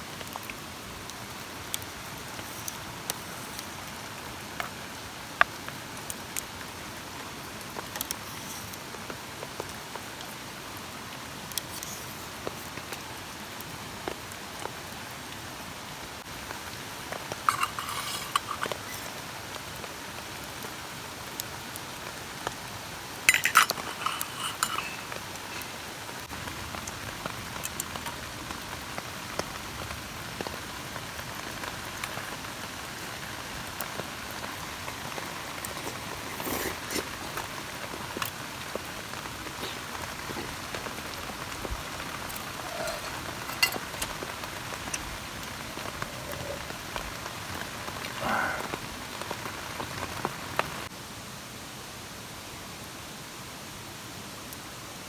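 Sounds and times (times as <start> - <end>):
rain falling on a tarp: 0.0 - 55.0
clinks: 17.5 - 19.1, 23.3 - 25.7, 42.3 - 45.1.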